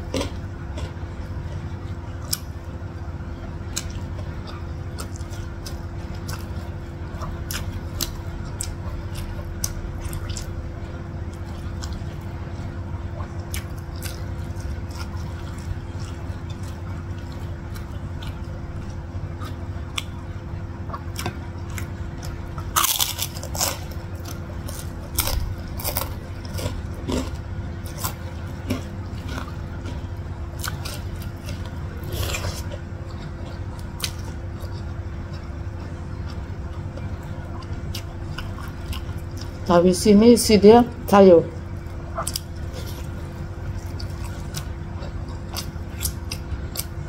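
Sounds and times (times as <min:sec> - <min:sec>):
steady low hum: 0:00.0 - 0:47.0
wet chewing and mouth clicks: 0:20.9 - 0:39.6, 0:42.2 - 0:46.9.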